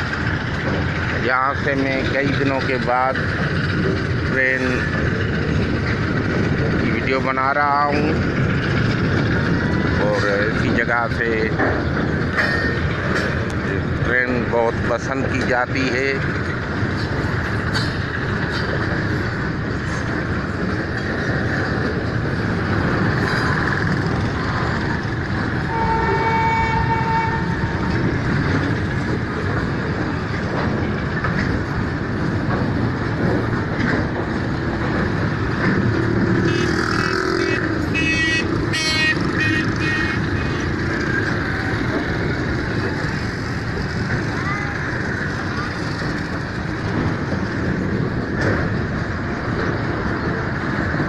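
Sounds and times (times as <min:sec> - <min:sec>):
freight train rumbling: 0:00.0 - 0:51.0
train horn blast: 0:25.7 - 0:27.8, 0:36.4 - 0:40.6.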